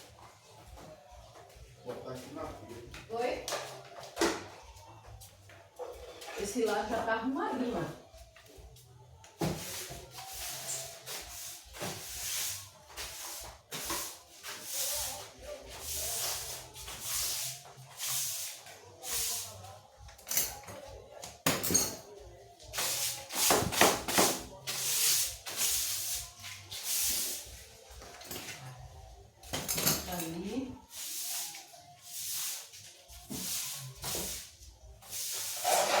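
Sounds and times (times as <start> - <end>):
rhythmic scraping strokes: 30.2 - 36.0.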